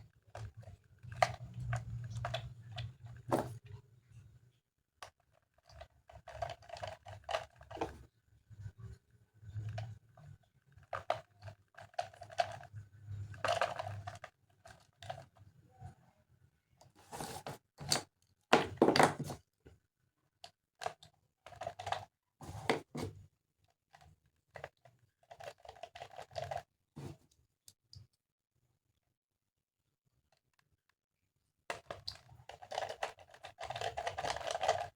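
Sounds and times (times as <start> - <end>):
plastic toy parts clicking: 5.0 - 7.9, 13.3 - 15.4, 20.4 - 22.1, 24.0 - 26.6, 31.7 - 34.9.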